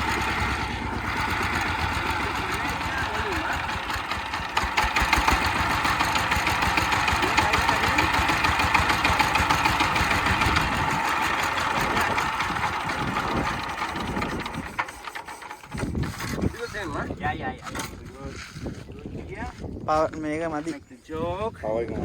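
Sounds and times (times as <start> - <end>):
tractor engine knocking: 0.0 - 16.9.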